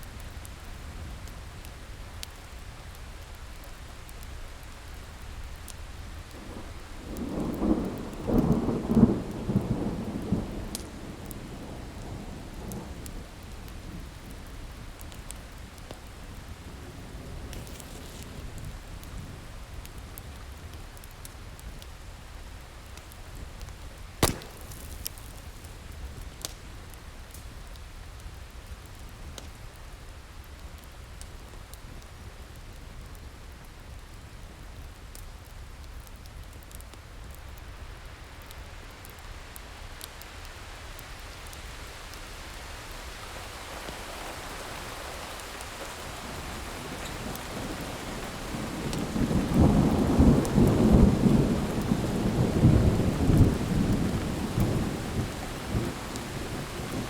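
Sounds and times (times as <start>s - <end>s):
wood fire crackling: 0.0s - 9.6s, 10.7s - 12.0s, 12.7s - 57.0s
steady rain: 0.0s - 57.0s
rumble of thunder: 46.3s - 57.0s.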